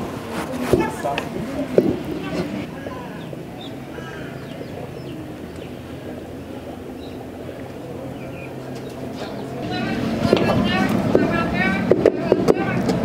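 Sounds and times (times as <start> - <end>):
steady low hum: 0.0 - 13.0
faint bird calls: 2.1 - 9.6.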